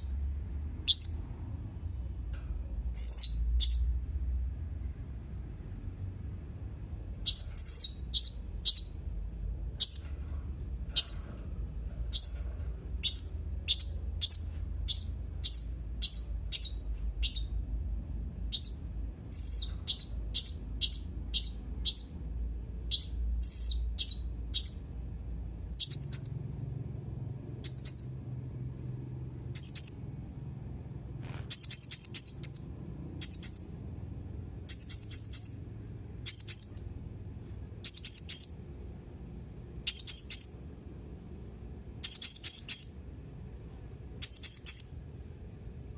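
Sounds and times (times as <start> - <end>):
faint low hum: 0.0 - 45.9
parrot shrill chirps: 0.8 - 1.3, 2.9 - 4.0, 7.2 - 9.0, 9.8 - 10.1, 12.1 - 12.4, 13.0 - 17.6, 18.5 - 22.2, 22.9 - 24.9, 25.8 - 26.4, 27.6 - 28.2, 29.5 - 30.0, 31.4 - 33.8, 34.7 - 36.8, 37.8 - 38.7, 39.8 - 40.7, 42.0 - 43.0, 44.2 - 45.0.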